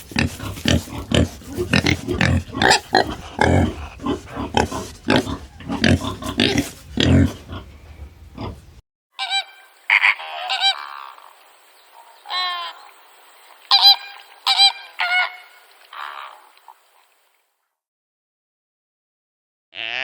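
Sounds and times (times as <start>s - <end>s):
longer animal call: 9.2s - 11.4s, 19.8s - 20.0s.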